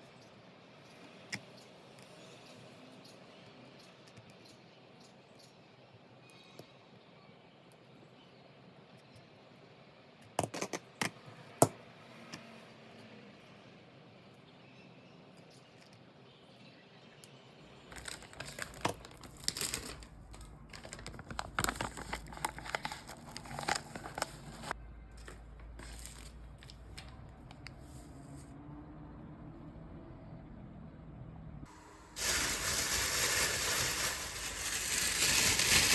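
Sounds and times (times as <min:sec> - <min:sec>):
crinkling and rustling: 0:17.7 - 0:28.5, 0:32.2 - 0:35.9.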